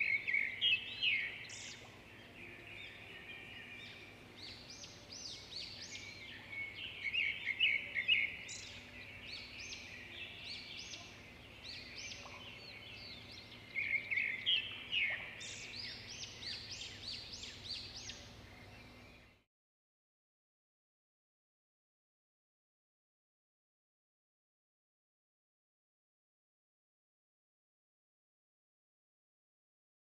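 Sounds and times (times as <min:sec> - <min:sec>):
faint background noise: 0:00.0 - 0:19.4
small birds chirping: 0:00.0 - 0:19.4.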